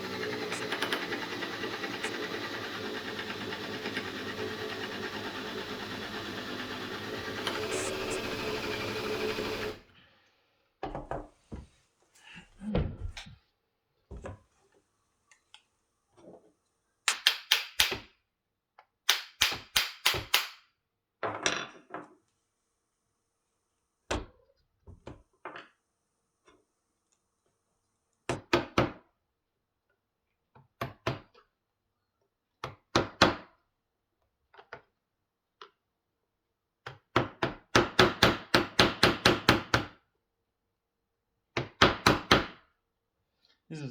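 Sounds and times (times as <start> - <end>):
small motor running: 0.0 - 9.8.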